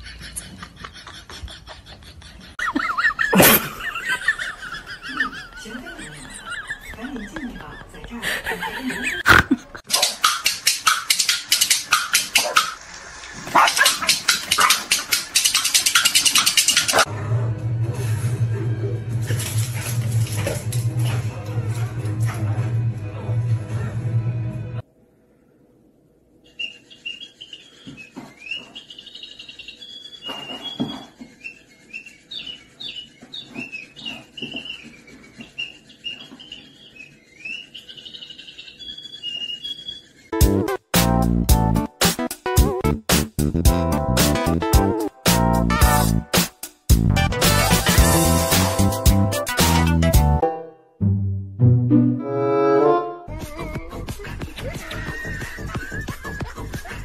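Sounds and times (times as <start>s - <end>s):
dogs barking fast: 9.8s - 17.1s
small bird chirping: 26.4s - 40.4s.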